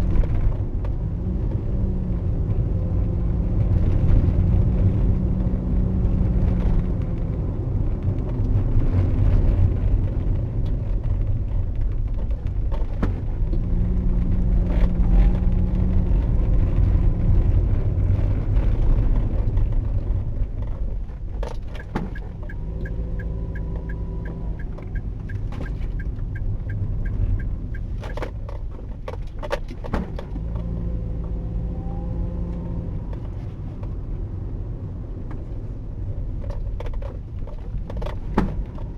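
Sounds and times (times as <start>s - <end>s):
car engine and tyres rumbling: 0.0s - 38.9s
sharp clicks and knocks: 20.6s - 30.7s.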